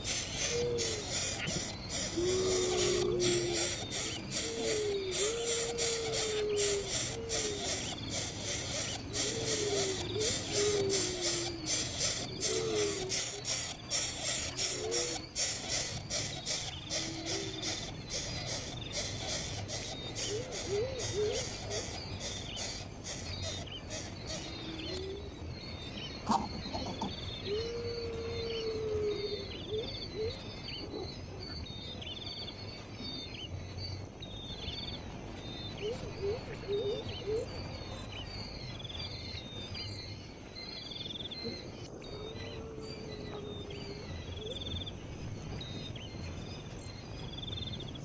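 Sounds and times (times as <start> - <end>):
insects buzzing: 0.0 - 28.0
birds chirping: 0.0 - 28.6.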